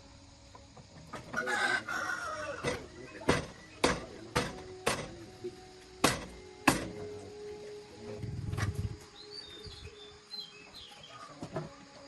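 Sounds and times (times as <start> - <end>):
hammer striking steel: 2.6 - 5.2, 6.0 - 7.0
faint bird chirps: 8.7 - 11.4.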